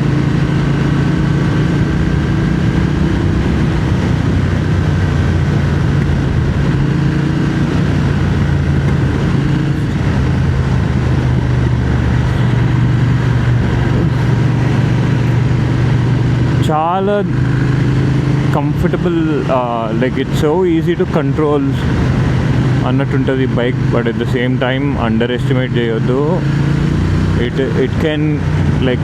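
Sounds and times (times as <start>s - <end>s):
wind rushing: 0.0s - 16.6s
motorcycle engine running: 0.0s - 29.0s.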